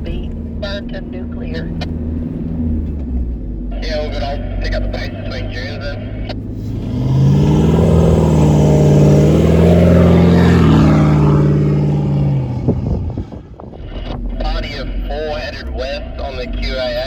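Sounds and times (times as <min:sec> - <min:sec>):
dirt bike engine revving: 0:06.6 - 0:13.5.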